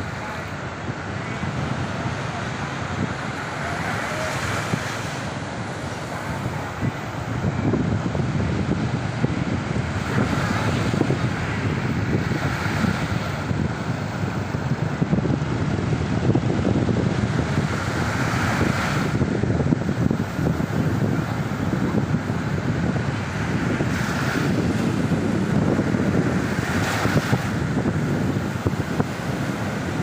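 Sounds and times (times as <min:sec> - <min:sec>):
ocean surf on beach: 0:00.0 - 0:30.0
wind buffeting microphone: 0:00.0 - 0:30.0.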